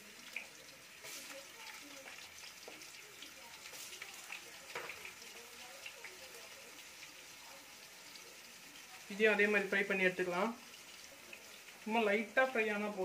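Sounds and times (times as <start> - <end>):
potato sticks sizzling in oil: 0.0 - 13.0.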